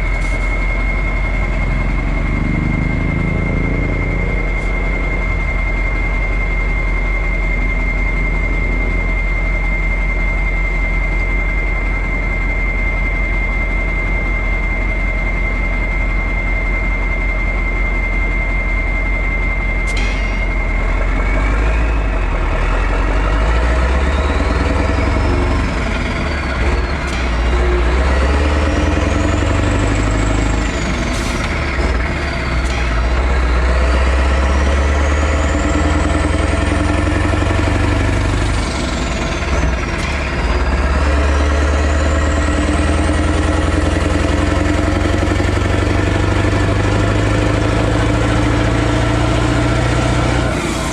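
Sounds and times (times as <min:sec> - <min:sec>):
diesel truck engine whining: 0:00.0 - 0:50.9.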